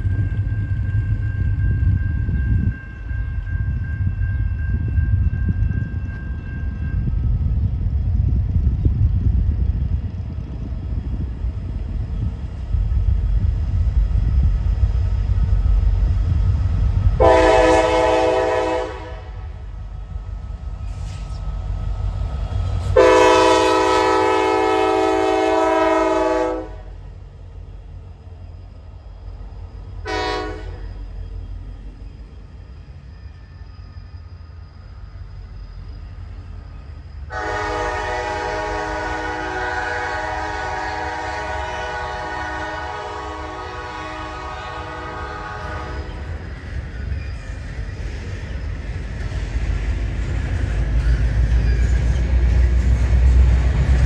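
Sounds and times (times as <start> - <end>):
locomotive engine rumble: 0.0 - 54.0
locomotive air horn blasts: 17.2 - 19.6, 22.9 - 27.0, 30.0 - 30.9, 37.3 - 46.2.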